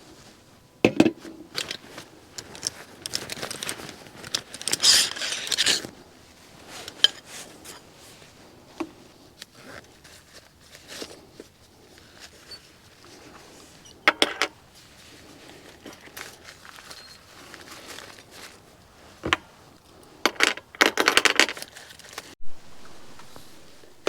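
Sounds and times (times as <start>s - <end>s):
clicks and knocks of objects: 0.9s - 5.9s, 20.3s - 22.4s
rasping rustle: 1.5s - 13.8s, 14.6s - 20.6s.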